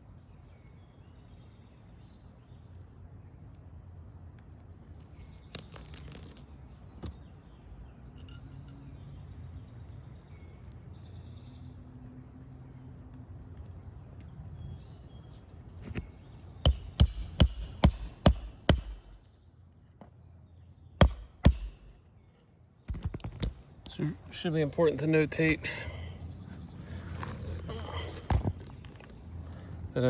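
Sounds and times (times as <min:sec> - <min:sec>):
hammer striking roof shingles: 0:16.0 - 0:19.2, 0:21.0 - 0:22.0.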